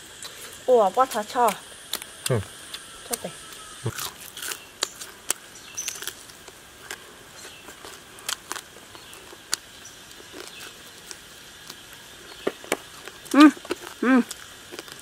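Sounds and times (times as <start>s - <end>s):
faint steady hiss: 0.0s - 15.0s
lip smacks and chewing crunches: 3.5s - 15.0s.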